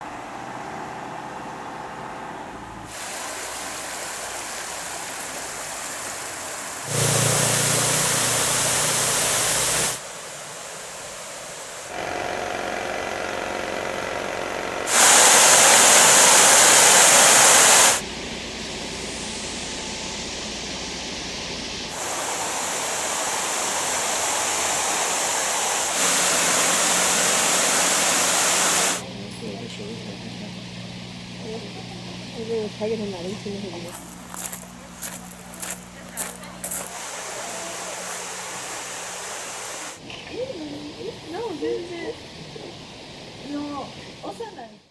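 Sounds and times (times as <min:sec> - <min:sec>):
stream water rushing: 0:02.9 - 0:12.0, 0:14.8 - 0:18.0, 0:21.9 - 0:29.0, 0:36.6 - 0:40.0.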